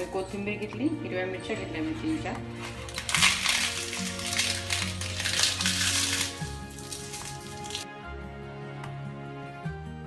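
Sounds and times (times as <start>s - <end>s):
background music sustained notes: 0.0s - 10.0s.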